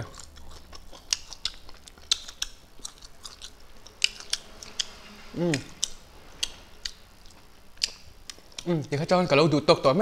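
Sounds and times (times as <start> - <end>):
chewing crunchy food: 0.0 - 9.1
person humming mm: 5.2 - 5.9.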